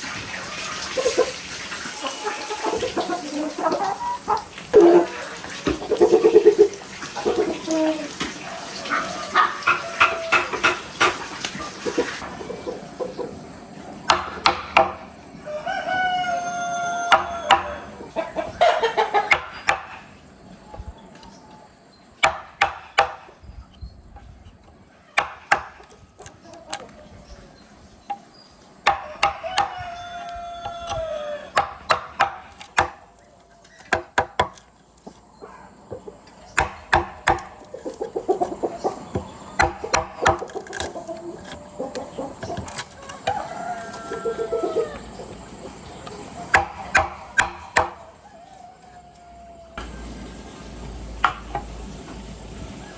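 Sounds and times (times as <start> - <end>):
rough fowl calls: 0.3 - 13.4, 37.5 - 45.4
rooster crowing: 7.7 - 10.8, 15.4 - 18.9, 28.9 - 31.9, 42.2 - 45.3, 47.7 - 50.0.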